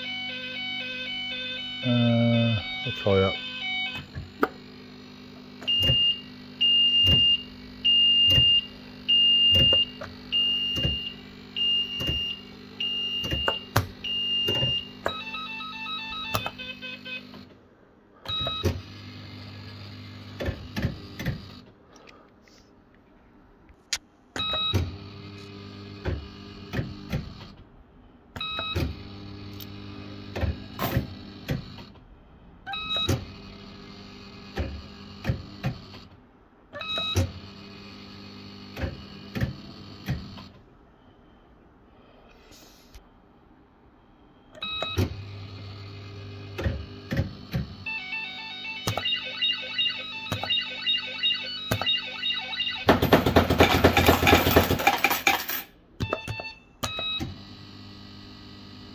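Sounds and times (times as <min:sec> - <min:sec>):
high beeps: 0:00.0 - 0:04.0, 0:47.9 - 0:53.0
stepped electronic tones: 0:00.0 - 0:04.5, 0:47.9 - 0:53.1.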